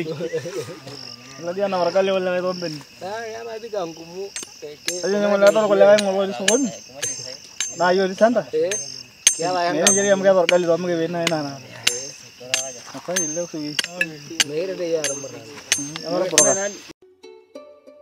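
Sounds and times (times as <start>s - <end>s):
voices singing: 0.0s - 16.9s
crickets chirping: 0.0s - 17.0s
metallic ting keeping time: 4.3s - 16.9s.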